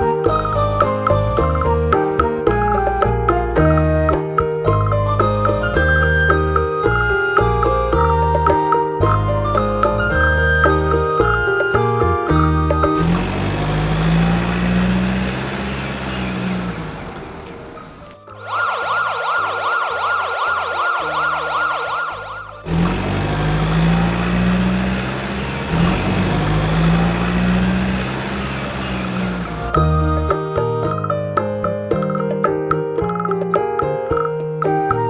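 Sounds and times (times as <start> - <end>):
siren warbling: 18.3 - 22.7
motor humming with rasp: 22.6 - 30.4.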